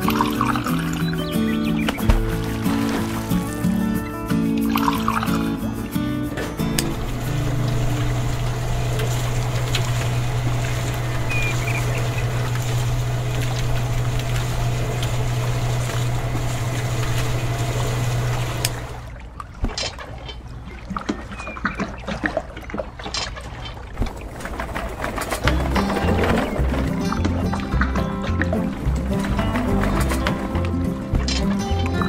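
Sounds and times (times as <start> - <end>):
wet concrete pouring: 0.0 - 19.2, 23.1 - 32.0.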